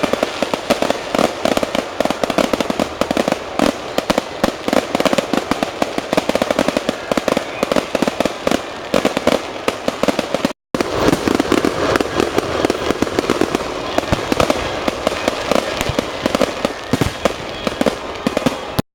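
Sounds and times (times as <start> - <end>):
fireworks bangs and crackles: 0.0 - 18.8.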